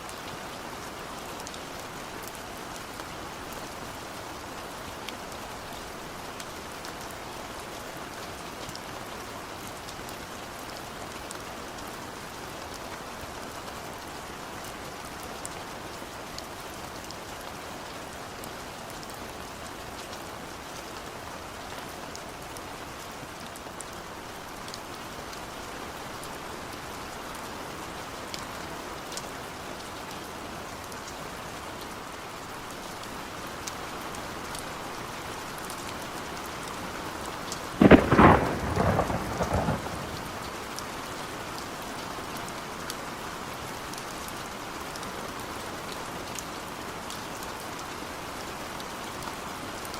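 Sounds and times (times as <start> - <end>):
steady rain falling: 0.0 - 49.9
thunderclap: 37.8 - 40.5.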